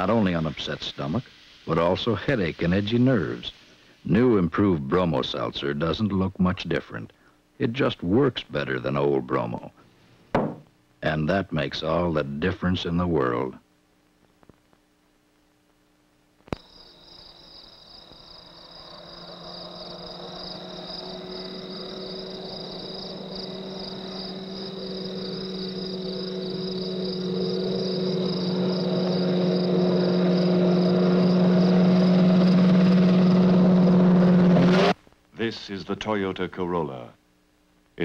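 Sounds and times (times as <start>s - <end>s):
thin high whine: 16.6s - 35.0s
car engine running: 19.2s - 35.0s.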